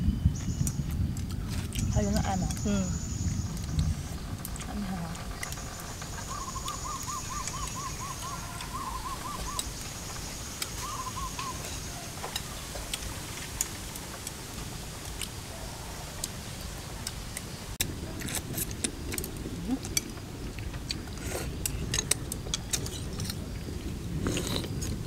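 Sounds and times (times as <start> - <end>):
bird calling: 2.6 - 12.9.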